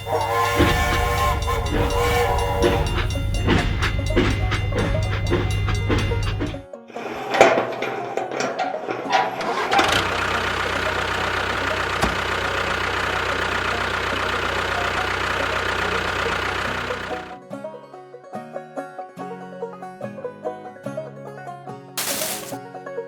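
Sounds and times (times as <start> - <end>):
engine cranking and running: 0.0 - 17.4, 22.0 - 22.6.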